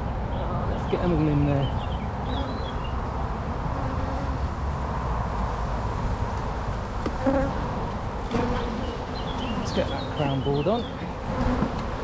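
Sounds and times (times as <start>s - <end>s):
bees buzzing: 0.8s - 7.6s, 8.2s - 11.8s.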